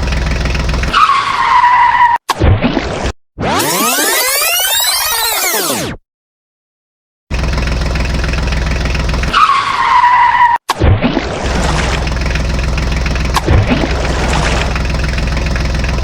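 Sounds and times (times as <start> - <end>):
vehicle engine running: 0.0 - 0.9, 7.3 - 9.4, 11.4 - 16.0
short low rumble: 11.5 - 16.0.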